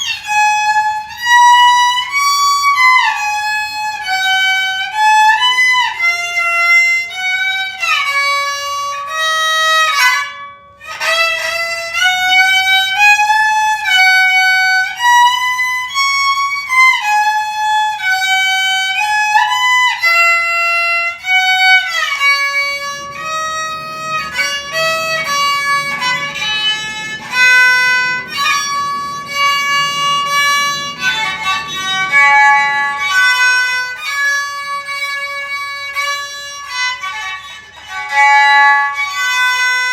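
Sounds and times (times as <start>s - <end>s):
soft low accompaniment: 0.0s - 39.7s
bowed string melody: 0.0s - 39.9s.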